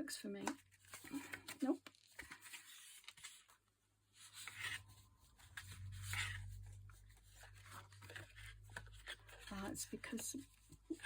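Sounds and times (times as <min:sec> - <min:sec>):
paper rustling: 0:00.7 - 0:11.0
low steady hum: 0:04.4 - 0:11.0.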